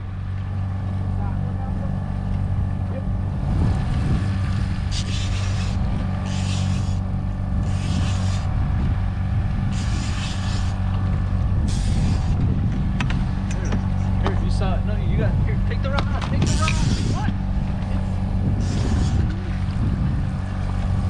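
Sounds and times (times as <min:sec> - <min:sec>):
outboard motor running: 0:00.0 - 0:21.0
short bursts of hiss: 0:04.9 - 0:07.0, 0:07.6 - 0:08.4, 0:09.8 - 0:10.8.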